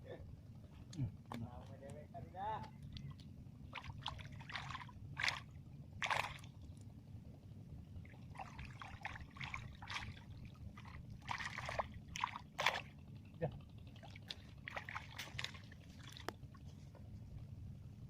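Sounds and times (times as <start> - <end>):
steady low rumble: 0.0 - 18.0
water splashing and trickling: 2.7 - 6.9, 7.9 - 16.9.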